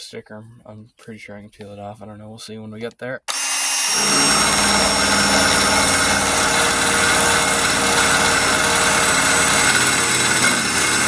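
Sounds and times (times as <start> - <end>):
power tool motor whine: 3.3 - 11.0.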